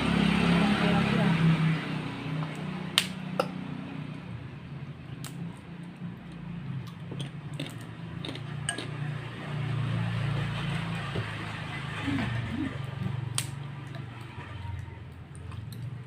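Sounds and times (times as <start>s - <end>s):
cutlery clinking on a bowl: 8.6s - 9.0s.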